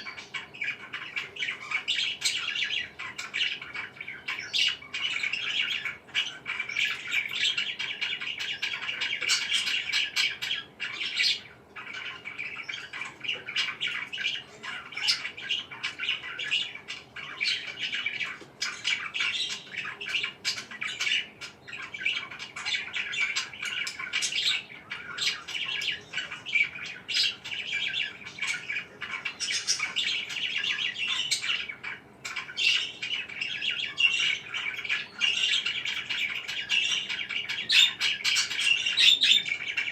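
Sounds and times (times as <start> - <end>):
parakeets chirping: 0.0 - 39.9.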